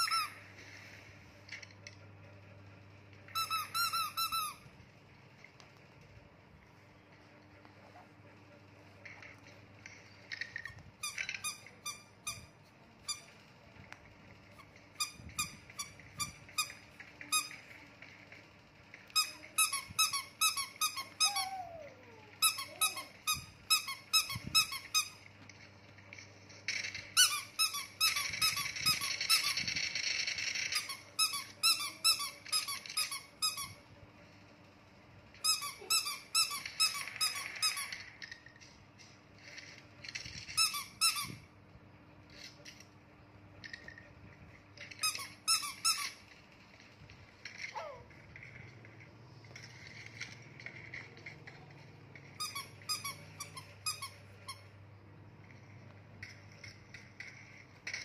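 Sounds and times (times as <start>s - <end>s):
squeaky rubber toy squeaks: 0.0s - 0.4s, 3.3s - 4.7s, 11.0s - 13.3s, 14.5s - 17.6s, 19.2s - 25.2s, 27.2s - 29.6s, 30.7s - 33.8s, 35.4s - 38.0s, 40.5s - 41.4s, 44.9s - 46.2s, 52.3s - 54.7s.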